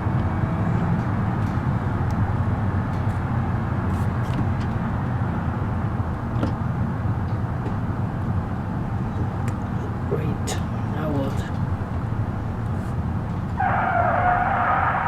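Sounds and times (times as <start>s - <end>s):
van engine and road noise: 0.0s - 15.0s.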